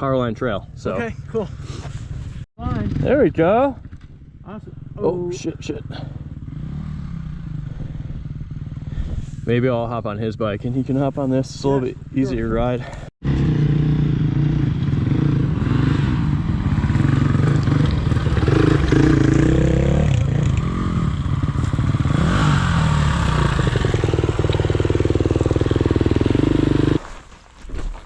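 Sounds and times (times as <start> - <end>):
dirt bike engine revving: 2.6 - 9.4, 13.2 - 27.0.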